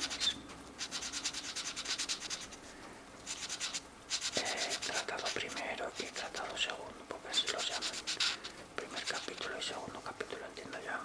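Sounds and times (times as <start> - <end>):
marker scratching on paper: 0.0 - 2.7, 3.3 - 6.6, 7.3 - 9.4.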